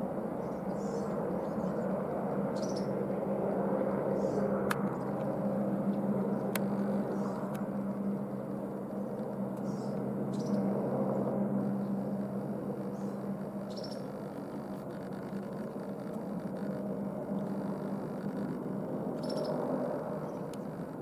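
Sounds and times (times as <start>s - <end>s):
distant helicopter hum: 0.0s - 21.0s
faint bird chirps: 2.6s - 2.9s, 9.6s - 10.7s, 11.7s - 15.8s, 19.2s - 20.8s.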